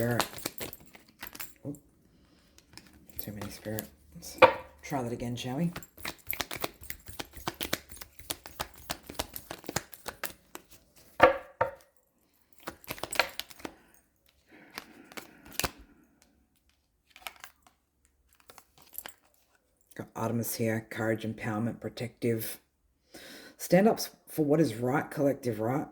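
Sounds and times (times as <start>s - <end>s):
cards being shuffled: 0.0s - 1.7s, 2.4s - 11.8s, 12.6s - 13.8s, 14.6s - 15.9s, 16.7s - 19.5s
cards rustling and tapping: 0.0s - 19.6s.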